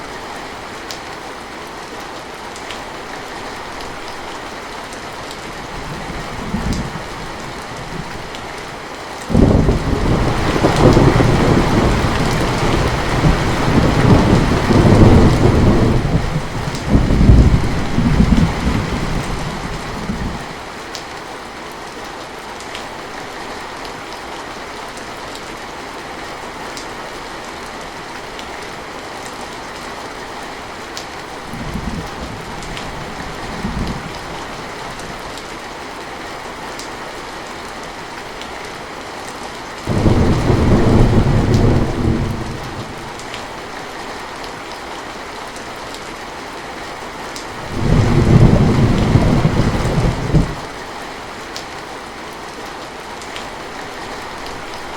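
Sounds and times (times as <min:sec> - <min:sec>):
heavy rain: 0:00.0 - 0:54.9
rolling thunder: 0:09.3 - 0:20.4, 0:39.9 - 0:43.3, 0:47.6 - 0:50.7.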